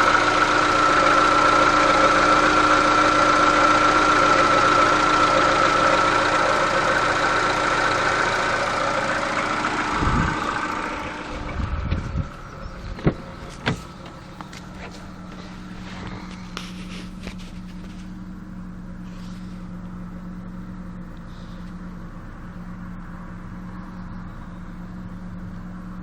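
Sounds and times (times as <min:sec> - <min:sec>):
car engine idling: 0:00.0 - 0:26.0
steady whine: 0:00.0 - 0:26.0
low thumps: 0:09.8 - 0:16.9.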